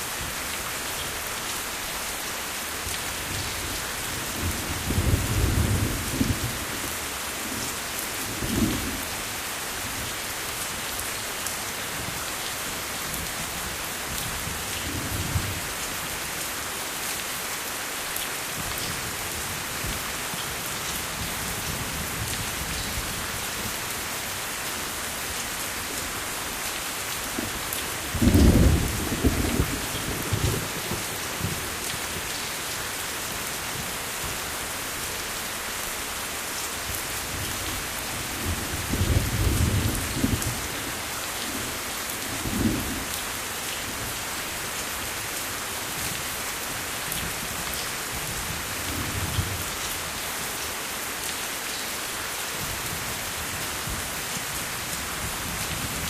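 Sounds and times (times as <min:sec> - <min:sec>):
steady rain falling: 0:00.0 - 0:56.0
thunder rumbling: 0:28.1 - 0:31.6.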